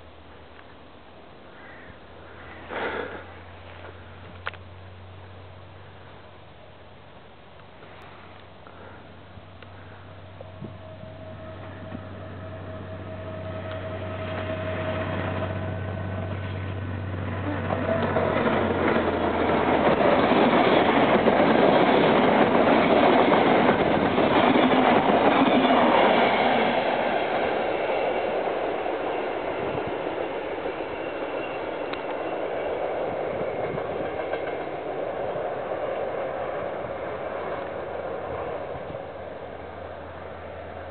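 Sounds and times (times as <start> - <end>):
diesel locomotive engine: 0.0 - 40.9
train wheels on rails: 7.6 - 40.9.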